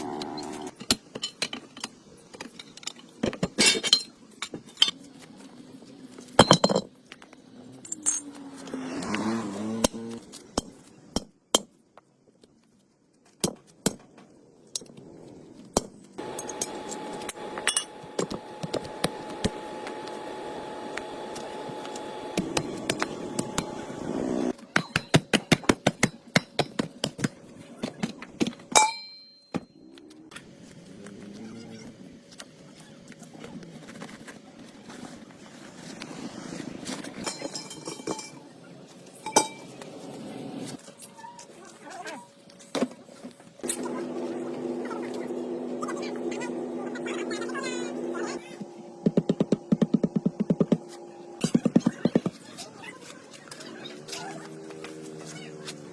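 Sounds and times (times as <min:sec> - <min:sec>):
metal tools clinking: 0:07.7 - 0:08.4, 0:37.2 - 0:38.4, 0:43.6 - 0:44.2
steady humming tone: 0:16.2 - 0:24.6, 0:43.3 - 0:52.6.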